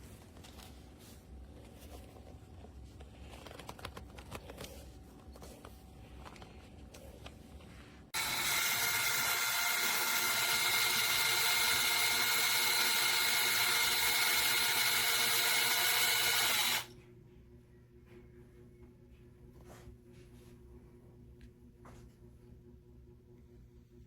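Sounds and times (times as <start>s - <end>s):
cordless drill whining: 8.2s - 16.9s.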